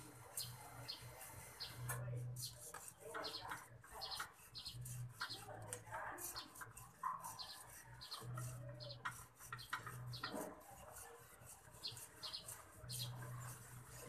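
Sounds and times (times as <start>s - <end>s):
faint birdsong chirps: 3.2s - 5.5s.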